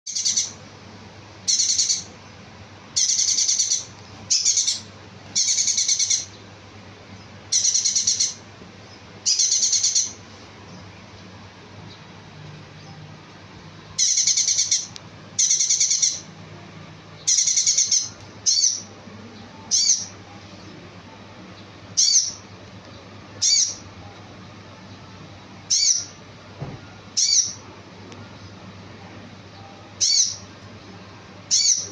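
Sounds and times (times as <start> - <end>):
high-pitched trilled bird song: 0.1 - 0.6, 1.4 - 2.2, 2.9 - 6.4, 7.2 - 10.9, 14.0 - 16.3, 17.2 - 18.9, 19.6 - 20.2, 21.6 - 22.4, 23.4 - 23.9, 25.7 - 26.2, 27.2 - 27.7, 29.5 - 30.5, 31.5 - 31.9
faint low hum: 0.1 - 31.9.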